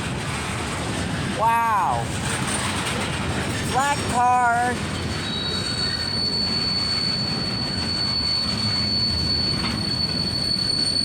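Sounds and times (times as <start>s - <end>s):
train wheels rumbling on rails: 0.0s - 11.0s
high-pitched wheel squeal: 4.9s - 11.0s.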